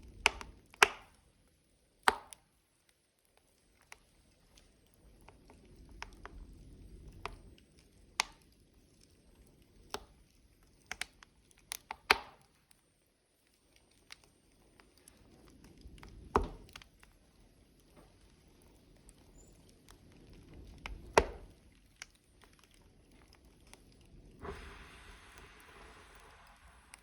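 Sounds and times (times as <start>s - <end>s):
fire sharp pops: 0.0s - 1.3s, 2.0s - 2.6s, 3.4s - 27.0s
burning logs crackling: 0.0s - 27.0s
low rush of flame: 4.1s - 10.8s, 14.2s - 27.0s.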